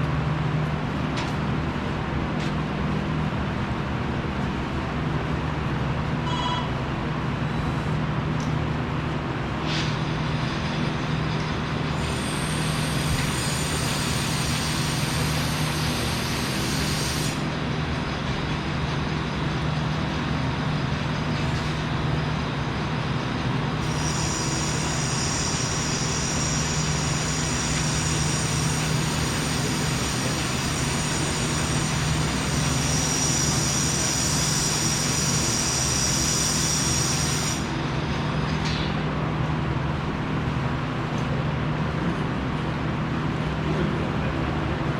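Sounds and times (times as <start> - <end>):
machinery drone: 10.0 - 40.3
high-pitched whine: 23.8 - 38.5.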